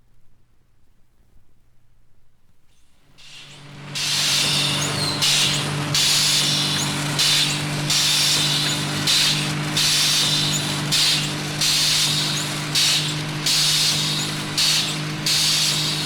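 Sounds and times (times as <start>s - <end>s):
loud hissing bursts: 3.1s - 16.0s
machine humming: 3.2s - 16.0s.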